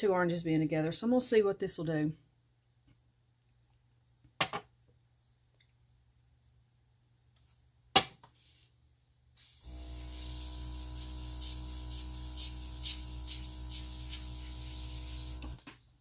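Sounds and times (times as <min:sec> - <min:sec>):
airbrush air hissing: 0:09.4 - 0:15.6
compressor motor hum: 0:09.4 - 0:15.6.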